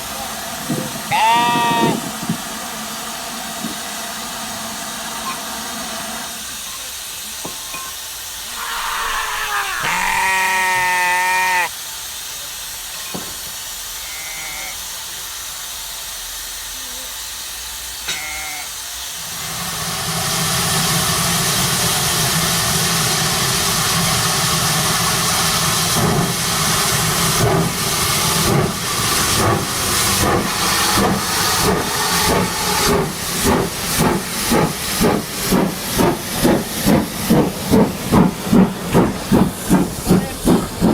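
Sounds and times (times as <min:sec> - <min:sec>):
steam hissing: 0:00.0 - 0:40.9
steam locomotive chuffing: 0:00.0 - 0:40.9
sheep bleating: 0:01.1 - 0:02.0, 0:08.5 - 0:11.7.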